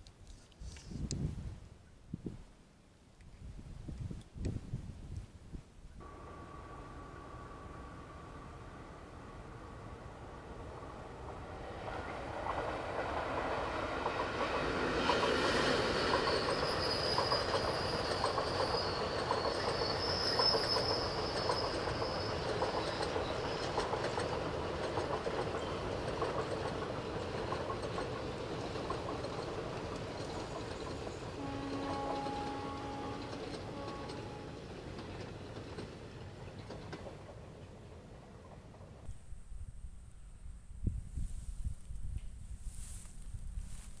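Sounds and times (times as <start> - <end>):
train wheels clattering over joints: 12.4 - 37.6
high wheel squeal: 15.3 - 23.9.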